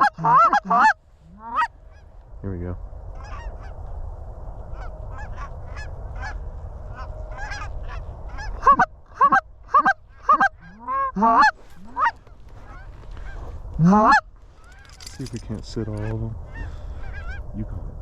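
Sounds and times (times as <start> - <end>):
close loud goose honks: 0.0 - 2.0, 4.8 - 14.2
distant geese calling: 0.0 - 2.2, 3.1 - 4.0, 4.6 - 17.6.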